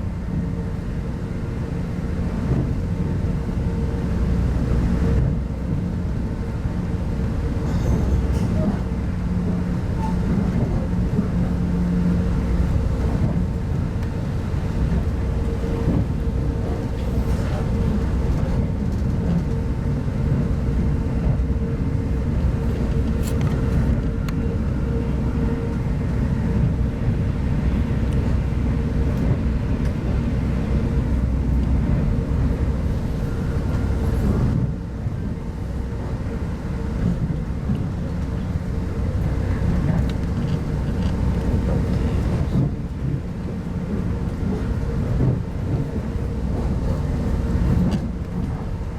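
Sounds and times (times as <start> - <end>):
constant hum: 0.0 - 48.9
wheels rumbling on track: 0.0 - 48.9.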